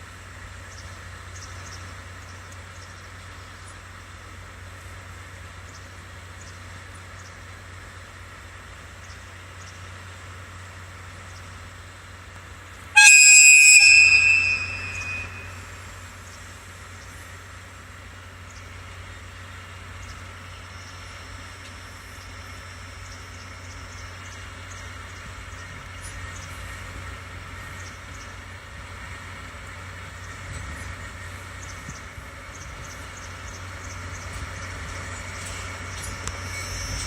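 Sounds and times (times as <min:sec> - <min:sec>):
low train engine hum: 0:00.0 - 0:37.0
loud high-pitched train whistle: 0:13.0 - 0:15.9.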